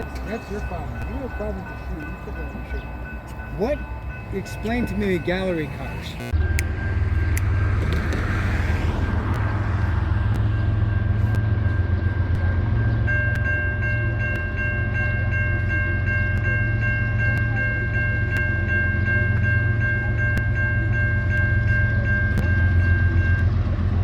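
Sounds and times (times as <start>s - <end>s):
bell ringing rapidly: 0.0s - 7.7s
train rumbling past: 0.0s - 24.0s.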